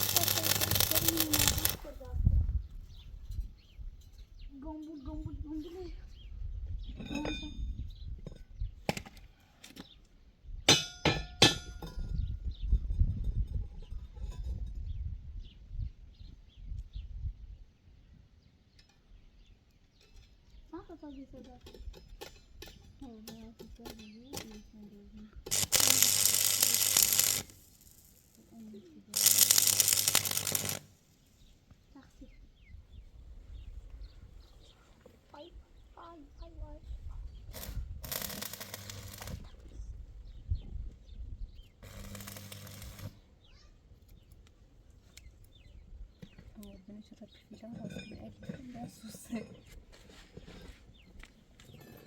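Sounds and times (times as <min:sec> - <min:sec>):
hard objects clinking: 0:00.0 - 0:01.8, 0:25.5 - 0:28.4, 0:29.2 - 0:30.9.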